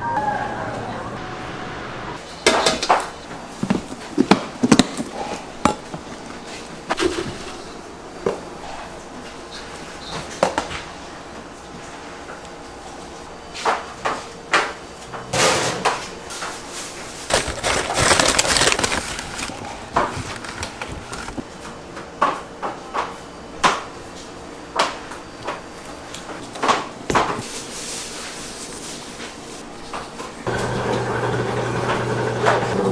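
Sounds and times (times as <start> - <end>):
utensils and trays clattering: 15.2 - 21.4.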